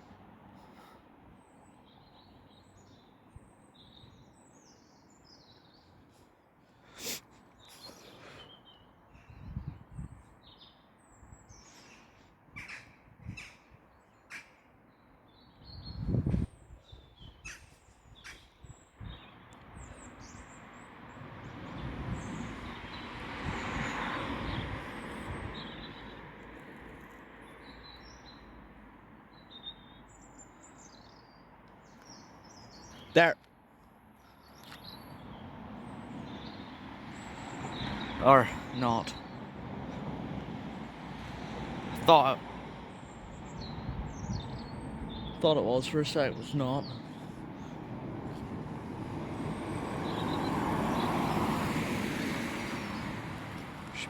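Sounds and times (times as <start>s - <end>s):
small birds chirping: 0.6s - 28.6s, 29.2s - 40.1s, 42.0s - 48.6s, 49.4s - 51.6s
crows cawing: 12.6s - 13.7s, 14.3s - 14.6s.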